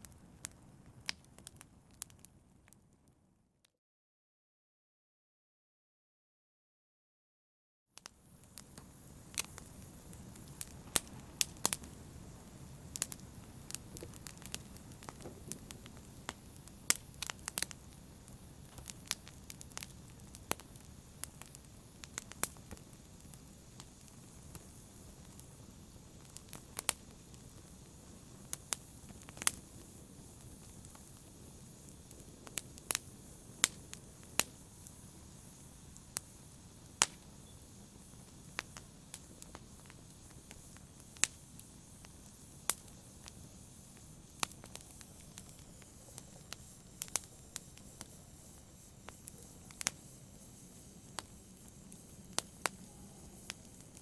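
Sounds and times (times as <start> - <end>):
wood fire popping and crackling: 0.0 - 3.2, 8.0 - 54.0
low rush of flame: 8.1 - 54.0.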